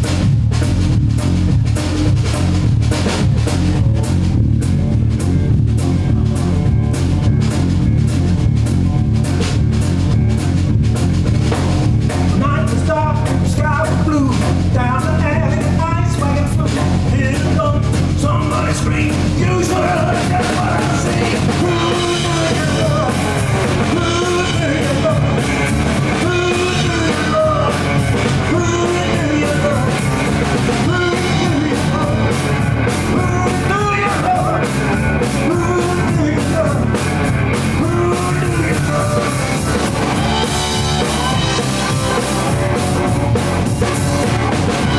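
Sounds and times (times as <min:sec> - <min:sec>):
drum kit beat: 0:00.0 - 0:44.9
electric slide guitar riff: 0:19.2 - 0:44.9.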